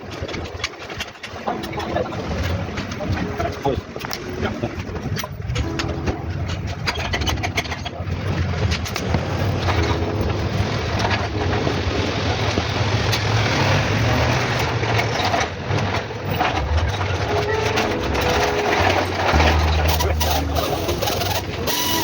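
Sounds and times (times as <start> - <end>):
car engine running: 16.3 - 21.8.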